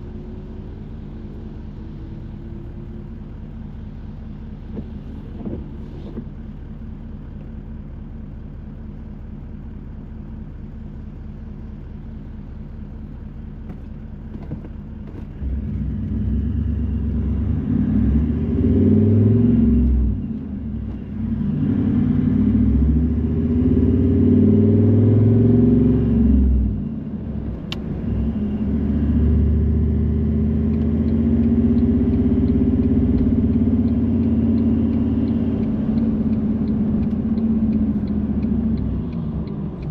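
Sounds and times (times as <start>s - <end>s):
car engine from inside: 0.0s - 39.9s.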